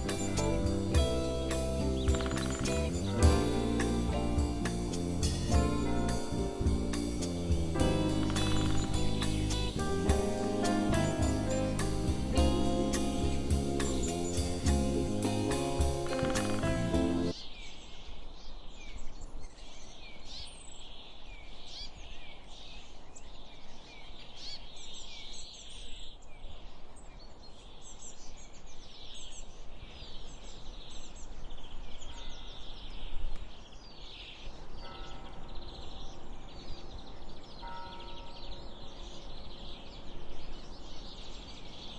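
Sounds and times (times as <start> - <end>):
highway traffic rumble: 0.0 - 17.4
small birds chirping: 0.0 - 41.9.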